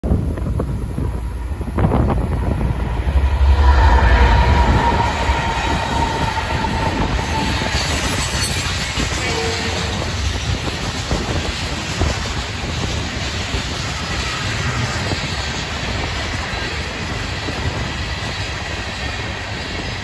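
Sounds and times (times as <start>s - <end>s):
diesel locomotives rumbling: 0.0s - 20.0s
freight cars rolling on rails: 0.0s - 20.0s
steady locomotive whine: 0.0s - 20.0s.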